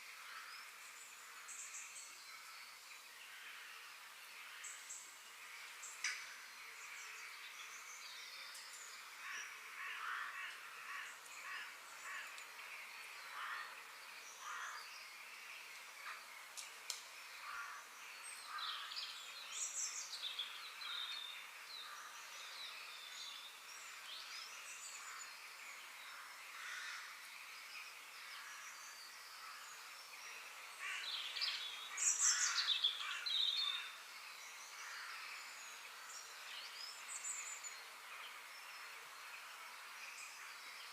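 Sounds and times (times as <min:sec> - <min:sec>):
faint outdoor hiss: 0:00.0 - 0:40.9
birds chirping and calling: 0:24.0 - 0:38.4.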